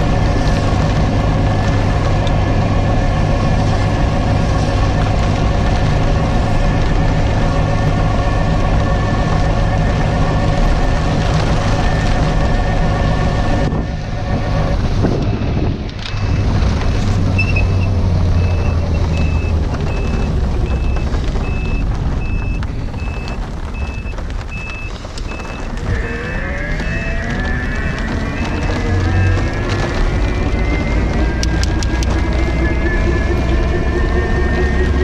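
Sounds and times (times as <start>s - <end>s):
low engine rumble: 0.0s - 35.0s
reversing alarm beeping: 17.4s - 25.8s.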